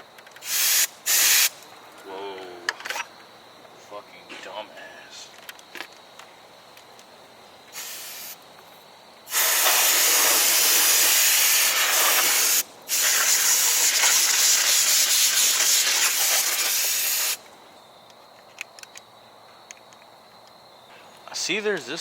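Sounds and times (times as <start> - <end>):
air hose hissing: 0.4 - 1.6, 7.7 - 8.4, 9.3 - 17.5.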